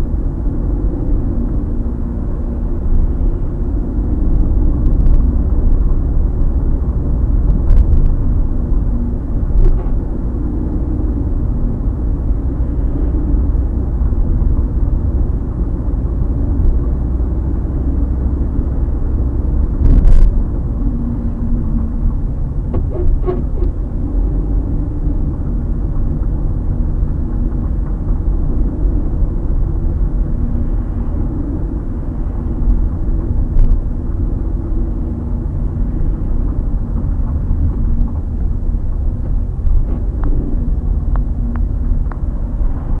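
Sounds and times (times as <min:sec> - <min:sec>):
car road rumble: 0:00.0 - 0:43.0
suspension creaking: 0:17.5 - 0:43.0.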